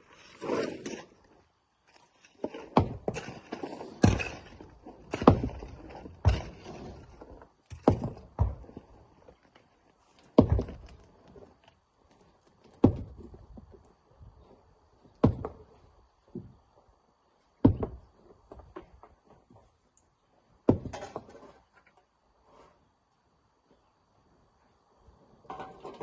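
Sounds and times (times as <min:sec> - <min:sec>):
rock impact thuds: 0:02.8 - 0:03.4, 0:04.0 - 0:07.0, 0:07.7 - 0:08.8, 0:10.4 - 0:11.0, 0:12.8 - 0:13.7, 0:15.2 - 0:15.7, 0:17.6 - 0:18.8, 0:20.7 - 0:21.3.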